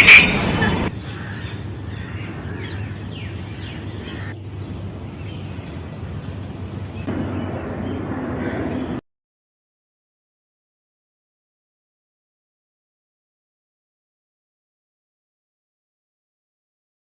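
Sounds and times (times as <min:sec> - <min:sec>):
birds calling: 0:00.0 - 0:09.0.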